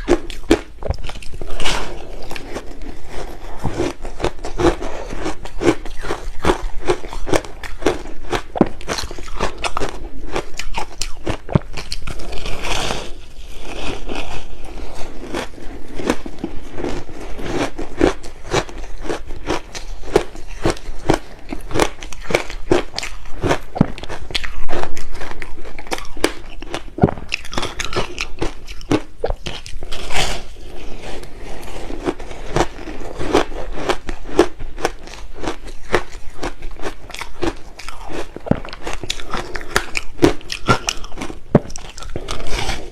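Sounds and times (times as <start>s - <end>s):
ice being crunched and chewed: 0.0s - 42.9s.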